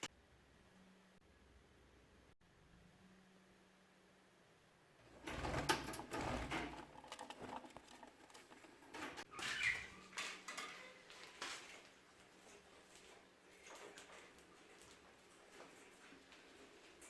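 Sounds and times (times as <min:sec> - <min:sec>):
birds scratching and rustling: 0:05.0 - 0:17.0.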